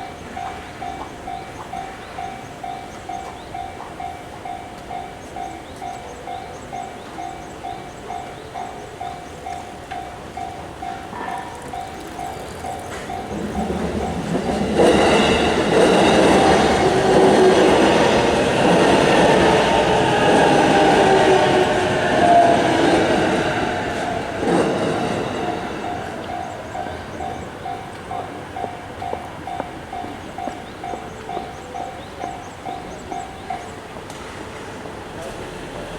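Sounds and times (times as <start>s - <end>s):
train wheels clattering: 9.4s - 35.5s
level crossing alarm clanging: 9.5s - 33.7s.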